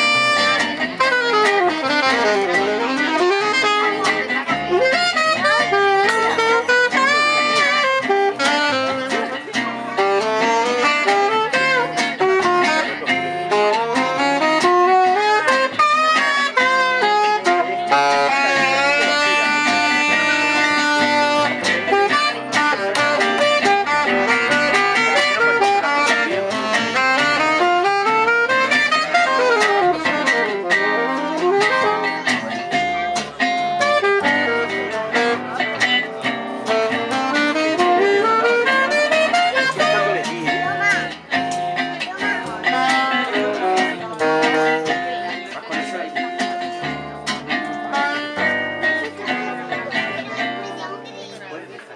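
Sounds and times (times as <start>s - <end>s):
fast melodic lead guitar: 0.0s - 51.9s
strummed guitar rhythm: 0.0s - 51.9s.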